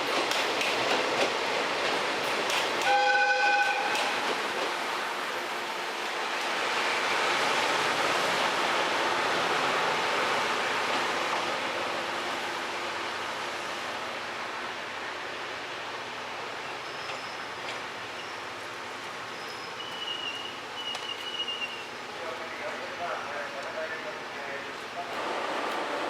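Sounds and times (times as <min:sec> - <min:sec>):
train rumbling on rails: 0:00.0 - 0:26.0
train horn blast: 0:02.8 - 0:04.2.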